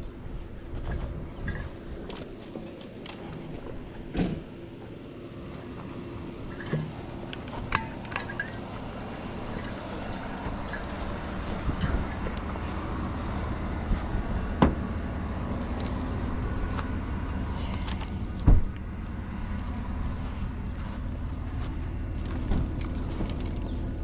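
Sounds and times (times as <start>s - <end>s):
vehicle engine hum from inside: 0.0s - 24.0s
loud thump: 18.4s - 18.7s.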